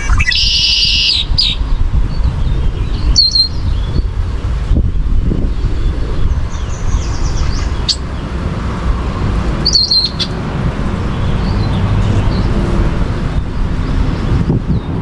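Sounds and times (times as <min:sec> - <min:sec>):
songbird chirping: 0:00.0 - 0:01.7, 0:06.7 - 0:08.3, 0:09.6 - 0:10.4.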